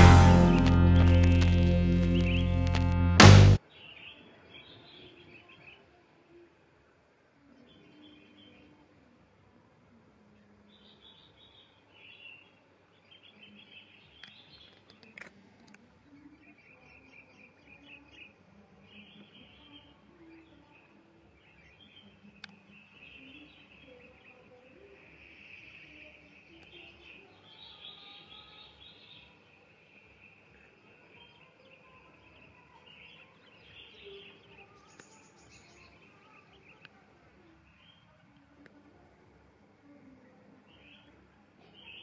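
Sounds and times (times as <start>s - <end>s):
birds chirping: 0.0s - 5.8s.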